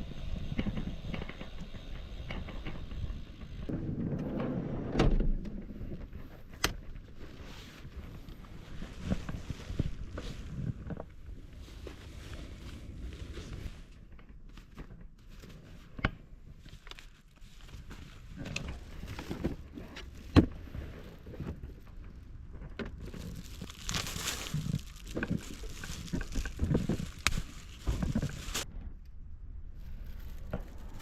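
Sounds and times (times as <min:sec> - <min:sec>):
rustling of bags: 0:07.0 - 0:13.9, 0:16.5 - 0:28.7, 0:29.8 - 0:31.0.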